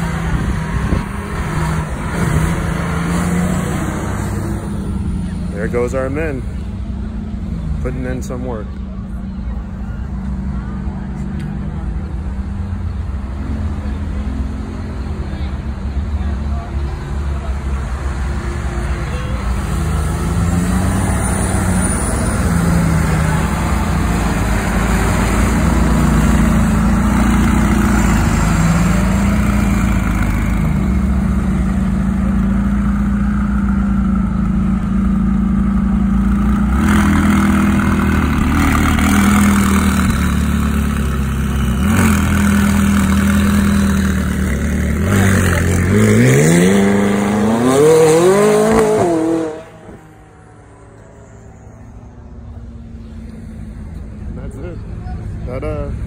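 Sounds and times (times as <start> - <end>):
car engines pulling away: 0.0 - 56.0
car passing: 35.5 - 56.0
engine revving hard: 41.8 - 50.0.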